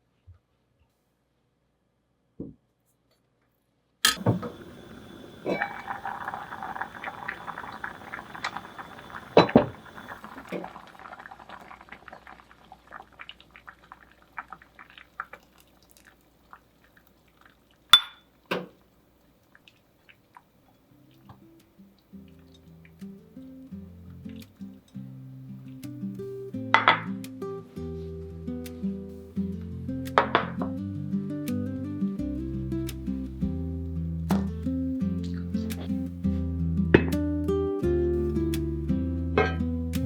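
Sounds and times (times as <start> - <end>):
utensils knocking: 4.1 - 5.9
cookware clacking: 4.1 - 10.3, 18.0 - 18.7
liquid hissing in a pan: 4.2 - 15.8.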